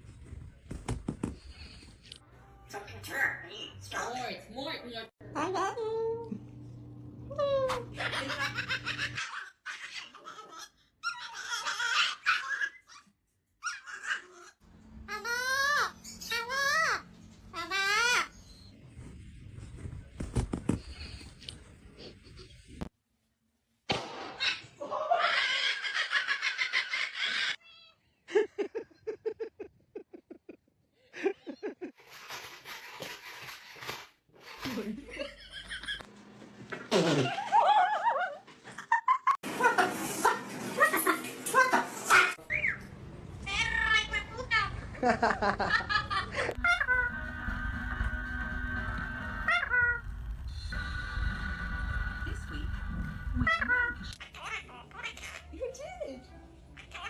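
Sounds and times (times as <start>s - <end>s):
people laughing: 7.9s - 9.2s, 44.9s - 47.1s.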